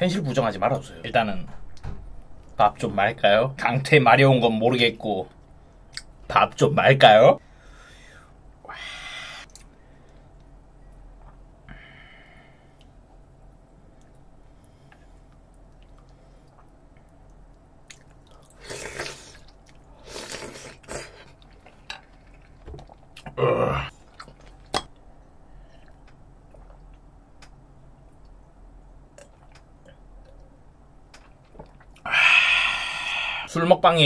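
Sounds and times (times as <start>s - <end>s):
person chewing and slurping: 17.9s - 23.3s.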